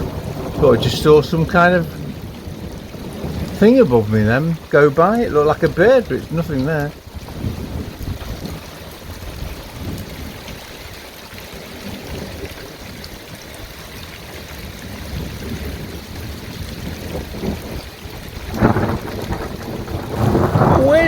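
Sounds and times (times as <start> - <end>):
low rumble of thunder: 0.0 - 11.0, 11.6 - 21.0
heavy rain pouring: 0.0 - 21.0.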